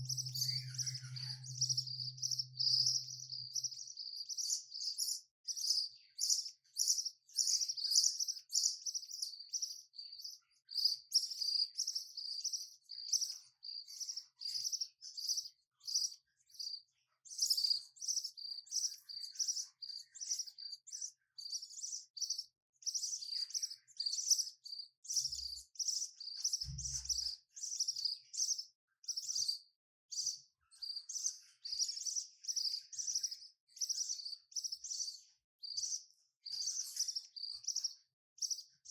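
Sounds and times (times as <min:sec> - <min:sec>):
budgerigars chirping: 0:00.0 - 0:03.8.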